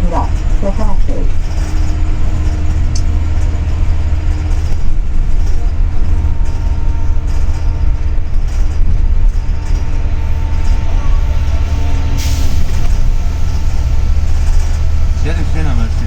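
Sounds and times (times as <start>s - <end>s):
bus engine and road rumble: 0.0s - 16.0s
short hiss: 12.2s - 12.9s.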